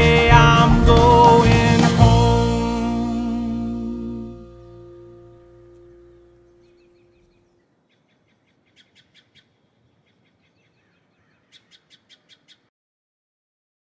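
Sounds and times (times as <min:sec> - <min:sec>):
string band chord: 0:00.0 - 0:06.7
bird chirping: 0:04.2 - 0:12.7
soft bird twittering: 0:05.6 - 0:12.7.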